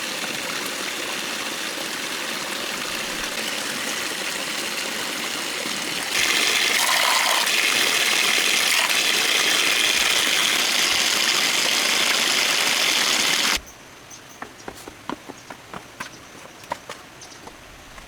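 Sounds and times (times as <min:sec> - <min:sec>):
rushing water: 0:00.0 - 0:13.6.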